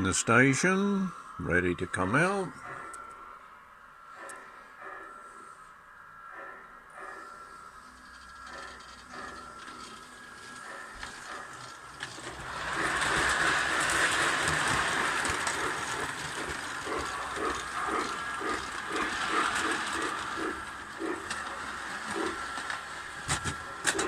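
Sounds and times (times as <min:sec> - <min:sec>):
model locomotive mechanism whirring: 0:00.0 - 0:24.0
regular clicking: 0:08.0 - 0:24.0.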